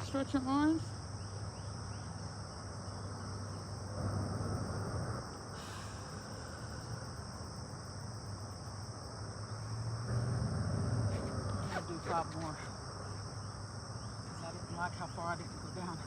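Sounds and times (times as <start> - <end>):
high-pitched insect chorus: 0.0 - 16.0
low hum: 9.4 - 13.4.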